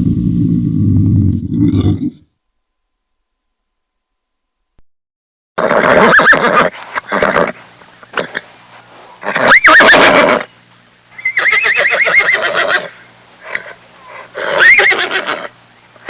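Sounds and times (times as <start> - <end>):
horse neighing: 5.6 - 8.4, 9.2 - 10.5, 11.2 - 15.5.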